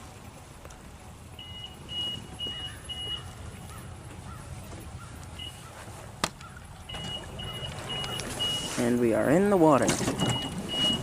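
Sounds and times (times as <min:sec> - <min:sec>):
low engine rumble: 0:00.0 - 0:11.0
reverse warning beeps: 0:01.3 - 0:03.7, 0:05.4 - 0:05.7, 0:06.9 - 0:09.4, 0:10.1 - 0:11.0.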